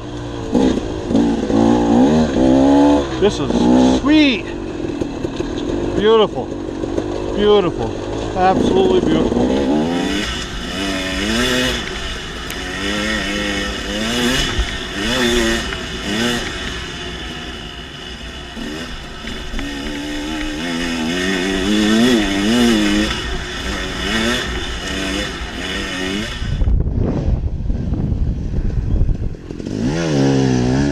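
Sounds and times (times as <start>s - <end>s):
dirt bike engine revving: 0.0s - 30.9s.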